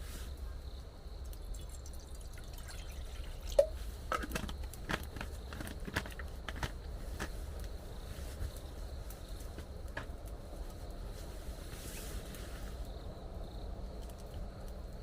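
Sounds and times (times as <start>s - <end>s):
water dripping: 1.2s - 4.8s.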